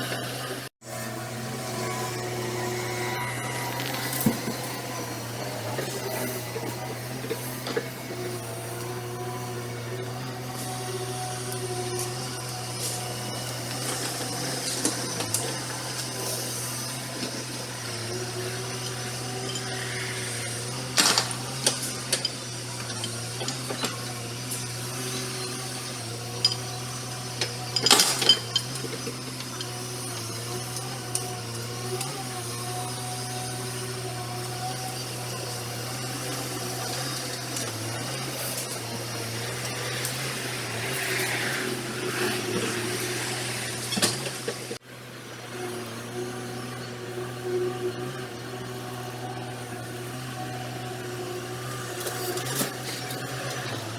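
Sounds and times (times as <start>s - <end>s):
excavator diesel engine running: 1.7s - 34.1s
sharp metal clanks: 27.8s - 29.6s.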